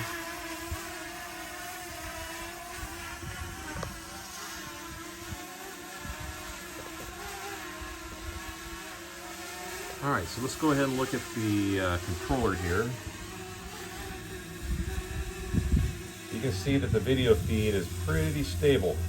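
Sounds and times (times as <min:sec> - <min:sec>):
wind buffeting microphone: 0:01.9 - 0:06.5, 0:12.2 - 0:19.0
drone propellers whining: 0:09.8 - 0:19.0.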